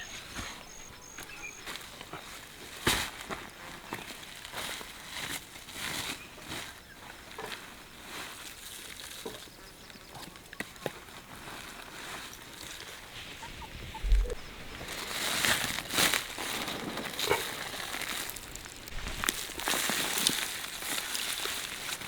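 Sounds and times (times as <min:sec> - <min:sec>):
rustling and scraping: 0:11.2 - 0:22.0.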